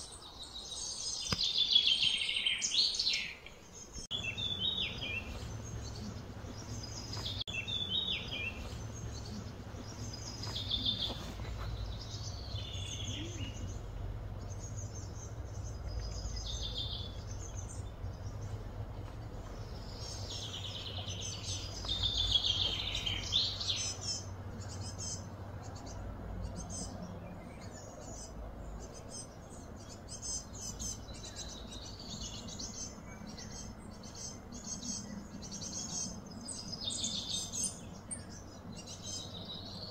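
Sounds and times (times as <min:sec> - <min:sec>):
birds chirping: 0:00.0 - 0:39.9
steady low rumble: 0:04.0 - 0:36.9.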